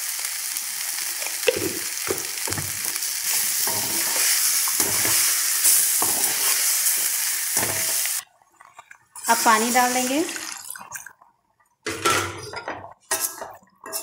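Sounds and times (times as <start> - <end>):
vegetables sizzling in hot oil: 0.0 - 8.2, 9.2 - 10.4
spatula scraping and knocking pan: 1.5 - 6.6, 12.0 - 14.0.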